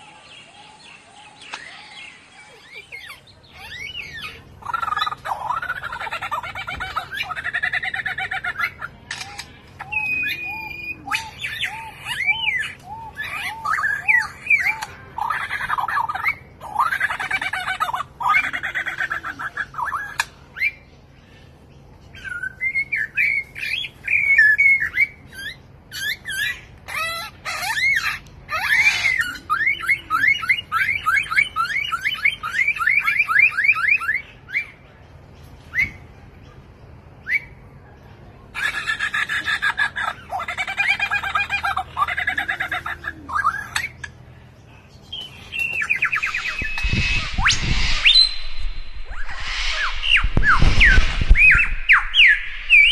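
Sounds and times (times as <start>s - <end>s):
mimicking bird whistled calls: 9.2s - 15.0s, 45.1s - 52.9s.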